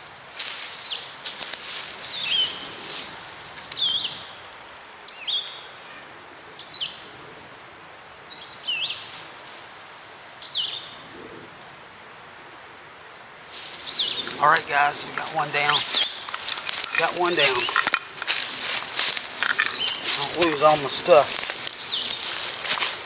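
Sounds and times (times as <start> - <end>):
turkey flapping in dry leaves: 0.0 - 4.0, 13.4 - 23.0
songbird chirping: 0.0 - 7.2, 8.3 - 9.1, 10.4 - 11.0, 13.5 - 23.0.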